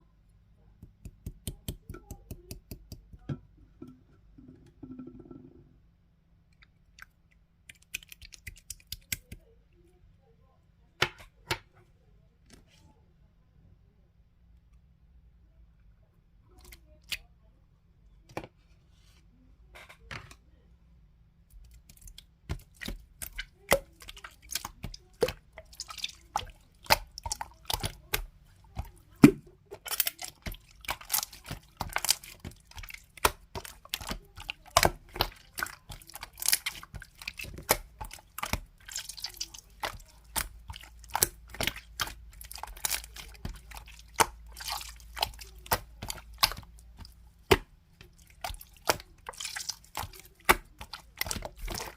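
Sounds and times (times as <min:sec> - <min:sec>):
slime squished by hand: 0:07.0 - 0:09.4, 0:21.5 - 0:51.9.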